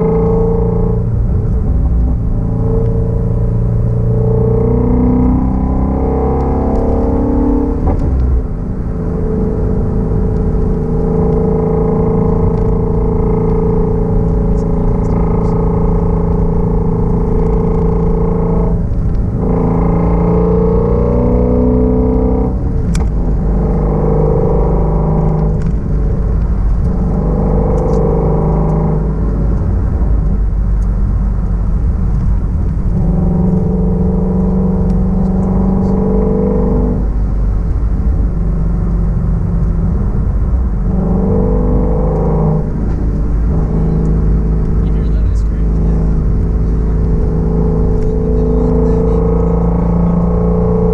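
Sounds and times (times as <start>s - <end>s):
car engine and exhaust accelerating: 0.0s - 50.9s.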